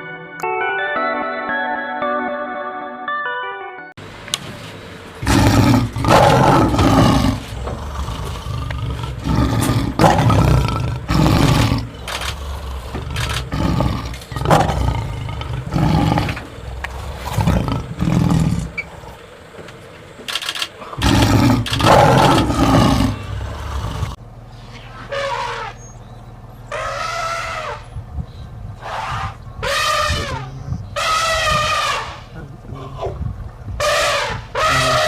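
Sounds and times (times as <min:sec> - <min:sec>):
lion roaring and grunting: 0:05.2 - 0:19.2, 0:20.8 - 0:24.2, 0:28.8 - 0:35.0.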